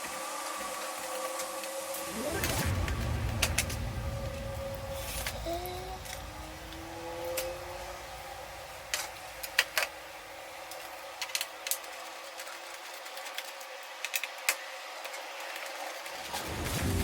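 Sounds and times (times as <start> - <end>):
steady hiss: 0.0 - 12.8.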